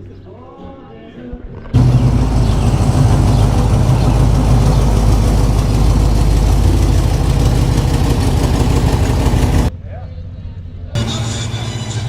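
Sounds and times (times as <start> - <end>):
car engine idling: 1.8 - 9.7.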